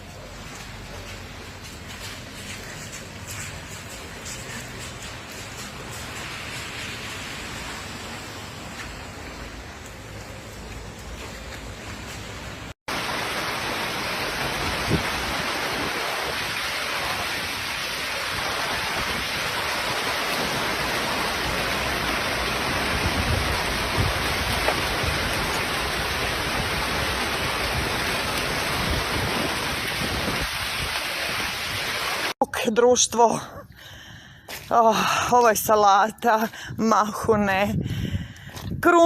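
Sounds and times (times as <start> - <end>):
hail and heavy rain pelting: 12.9 - 32.4.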